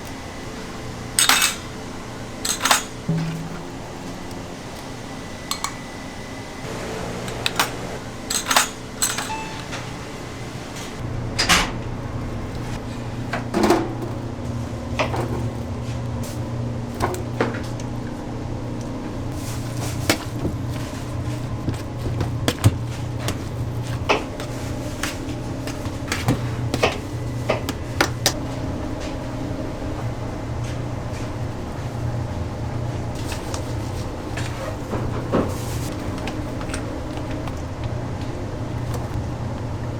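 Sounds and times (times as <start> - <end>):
low machine hum: 0.0 - 39.9
kitchen knocks and clanks: 2.5 - 4.2, 7.2 - 10.0, 21.6 - 28.4
doors or lids shutting: 6.6 - 11.8.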